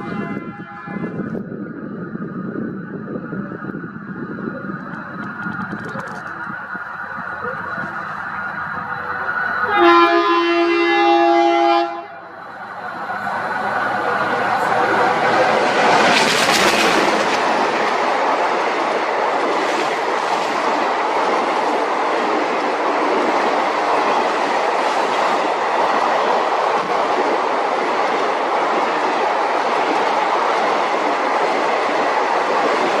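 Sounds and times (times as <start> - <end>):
train wheels rumbling: 0.0 - 33.0
wheels clickety-clack: 4.8 - 6.6.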